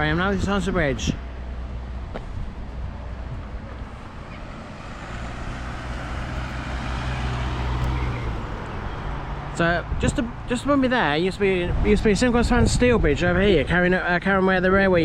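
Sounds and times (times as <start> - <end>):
road vehicle passing by: 0.9 - 10.9.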